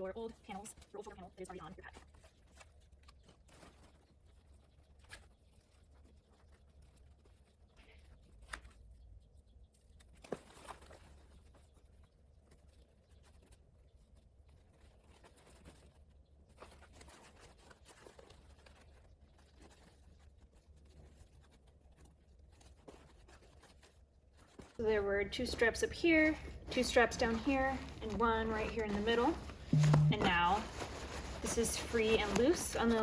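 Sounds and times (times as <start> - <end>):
rustling of webbing and fabric: 0.0 - 33.0
low steady hum: 24.8 - 33.0.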